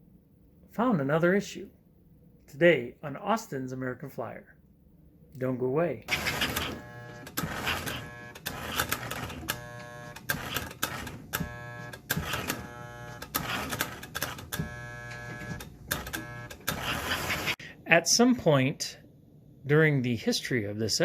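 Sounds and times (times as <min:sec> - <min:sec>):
model train motor hum and clatter: 0:06.1 - 0:17.6.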